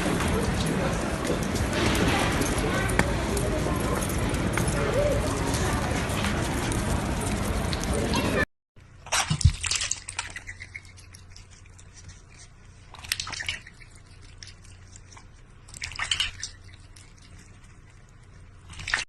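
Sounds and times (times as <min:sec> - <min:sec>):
small water drips: 0:08.8 - 0:19.0
bursts of watery noise: 0:12.9 - 0:14.6.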